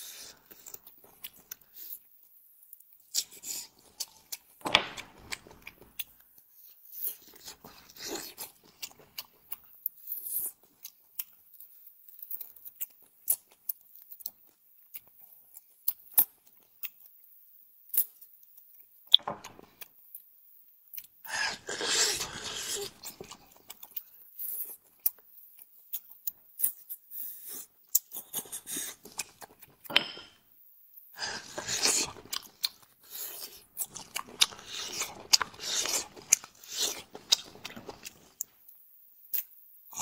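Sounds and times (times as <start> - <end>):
person chewing and biting food: 31.2 - 38.5.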